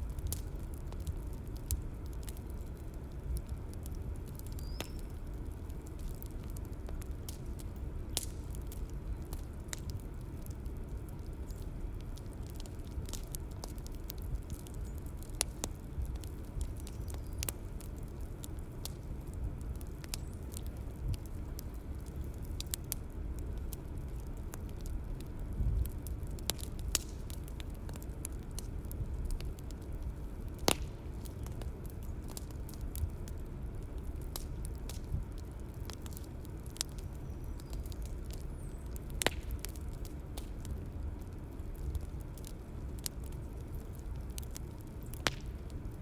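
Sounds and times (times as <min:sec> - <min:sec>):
bonfire crackling and popping: 0:00.0 - 0:46.0
low rumble of burning wood: 0:00.0 - 0:46.0.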